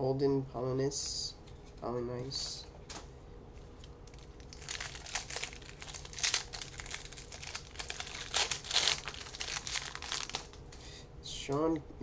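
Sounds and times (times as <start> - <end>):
trading cards rustling: 4.1 - 10.6.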